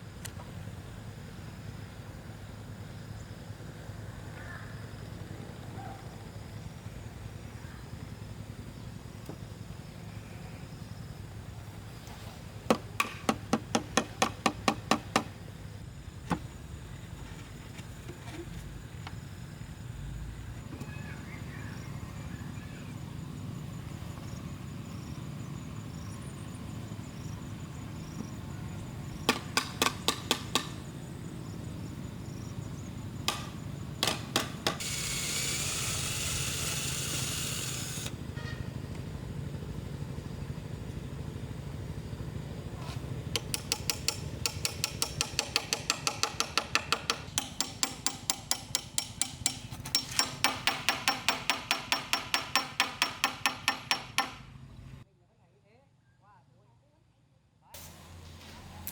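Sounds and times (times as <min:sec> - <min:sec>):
steady hissing noise: 0:00.0 - 0:38.2, 0:57.8 - 0:58.9
tool knocking on bamboo: 0:12.7 - 0:15.3, 0:29.3 - 0:30.8, 0:33.3 - 0:34.8, 0:43.4 - 0:54.4.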